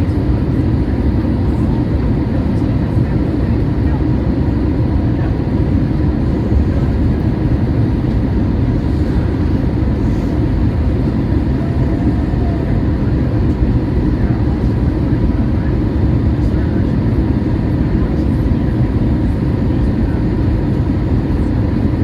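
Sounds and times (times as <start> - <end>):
airplane cabin rumble: 0.0 - 22.0
faint steady whine: 4.8 - 22.0.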